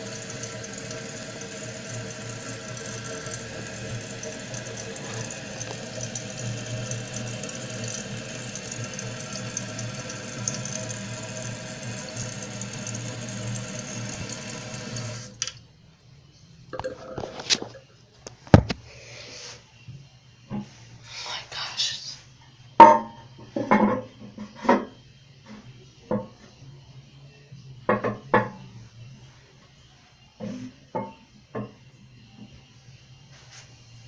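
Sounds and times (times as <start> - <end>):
toilet tank refilling: 0.0 - 15.6.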